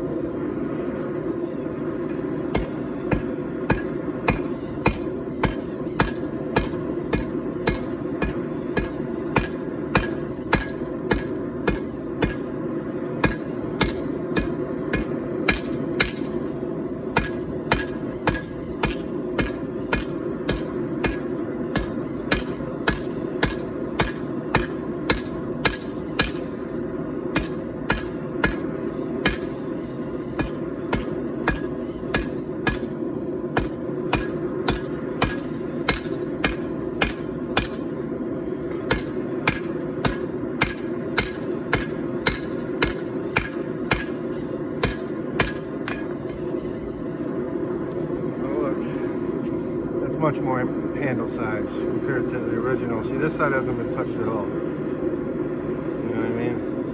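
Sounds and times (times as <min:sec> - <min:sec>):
hammer blows on anvil: 0:02.5 - 0:12.5, 0:13.2 - 0:16.5, 0:17.1 - 0:26.6, 0:27.4 - 0:29.7, 0:30.3 - 0:33.0, 0:33.6 - 0:38.0, 0:38.6 - 0:46.4.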